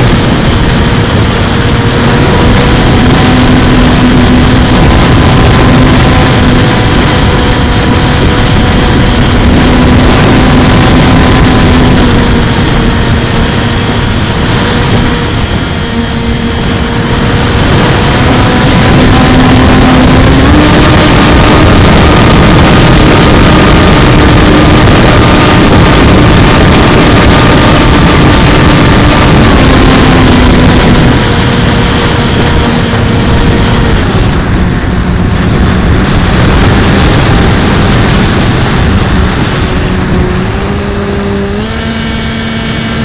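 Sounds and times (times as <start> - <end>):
electric motor and propeller whining: 0.0 - 43.0
wind rush: 0.0 - 43.0.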